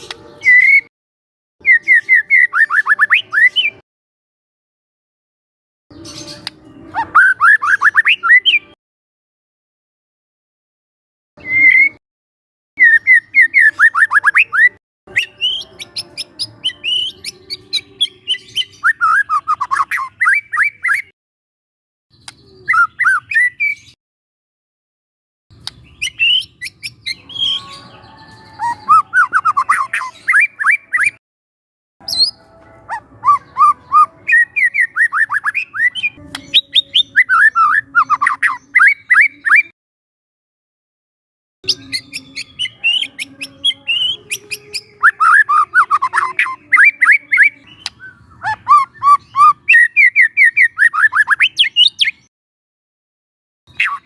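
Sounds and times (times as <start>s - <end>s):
bird singing whistles and chirps: 0.0s - 0.9s, 1.6s - 3.8s, 5.9s - 8.8s, 11.4s - 12.0s, 12.8s - 21.1s, 22.1s - 24.0s, 25.6s - 31.2s, 32.0s - 39.7s, 41.7s - 52.3s, 53.7s - 54.0s.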